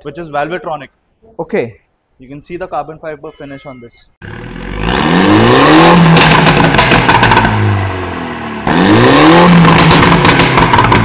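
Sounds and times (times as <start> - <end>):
car engine revving with crackle: 4.2 - 11.0.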